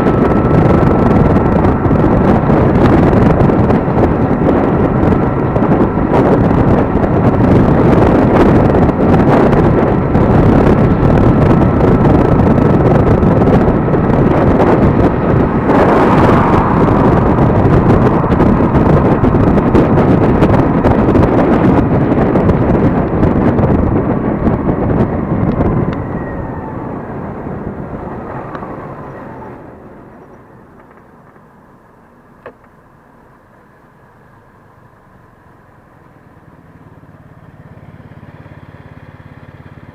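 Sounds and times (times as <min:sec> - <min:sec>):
wind buffeting microphone: 0:00.0 - 0:31.6
electric scooter whine: 0:00.0 - 0:39.9.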